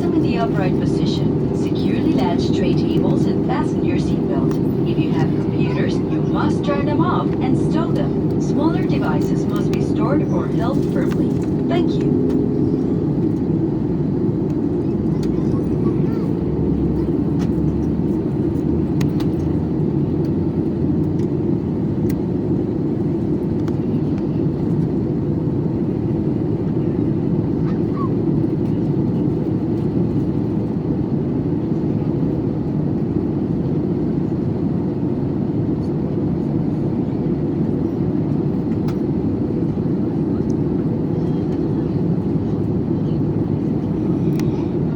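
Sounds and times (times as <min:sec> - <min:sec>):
airliner engine drone in cabin: 0:00.0 - 0:44.9.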